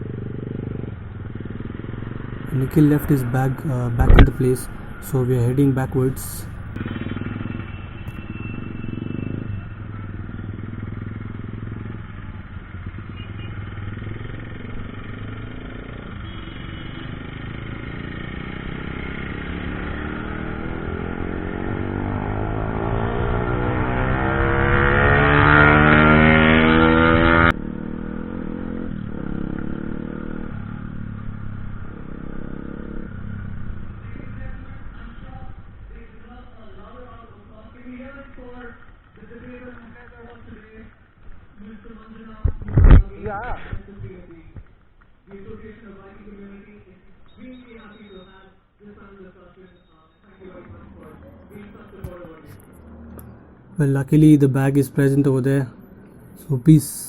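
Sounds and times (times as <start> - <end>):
motorcycle engine running: 0.0 - 37.1.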